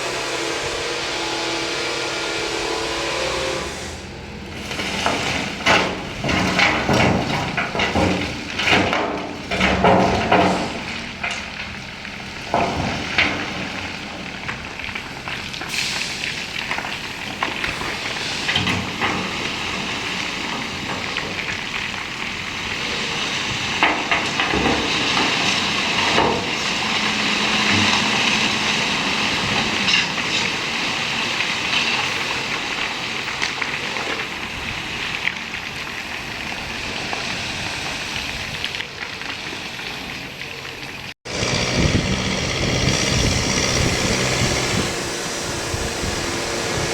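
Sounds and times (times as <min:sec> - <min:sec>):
knocks and clatters: 0:04.7 - 0:15.8, 0:23.7 - 0:28.7.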